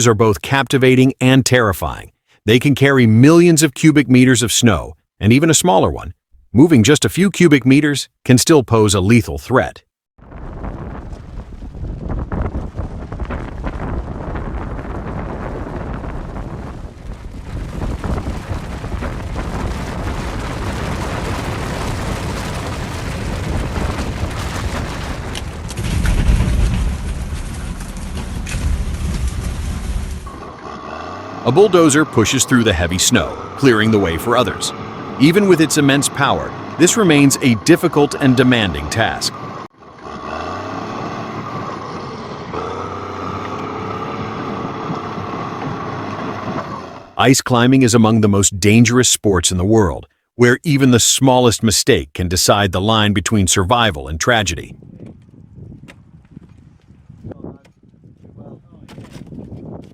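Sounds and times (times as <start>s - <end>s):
avalanche rumbling: 10.2s - 47.4s
bulldozer diesel engine running: 26.6s - 47.2s.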